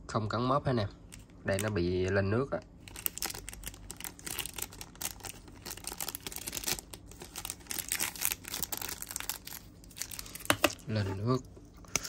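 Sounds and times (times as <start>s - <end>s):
crinkly rustling: 2.8s - 11.4s.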